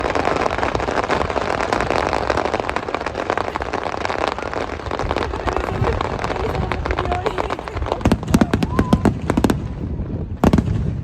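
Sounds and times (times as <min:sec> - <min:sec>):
fireworks crackling: 0:00.0 - 0:11.0
low rumble: 0:04.6 - 0:11.0.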